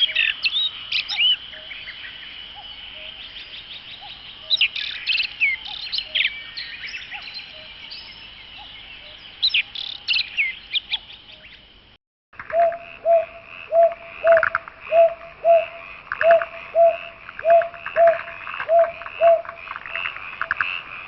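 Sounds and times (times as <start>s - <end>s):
birds chirping and trilling: 0.0s - 11.8s, 12.4s - 21.0s
lower repeated bird call: 12.4s - 20.6s.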